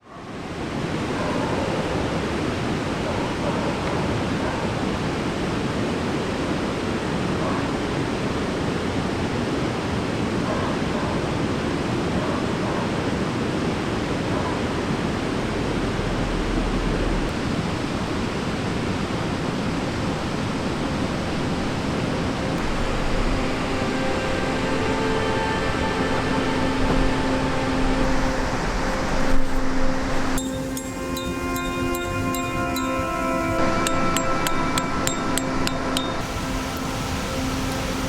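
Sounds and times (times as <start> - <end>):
creek water flowing: 17.3 - 38.0
music: 22.6 - 38.0.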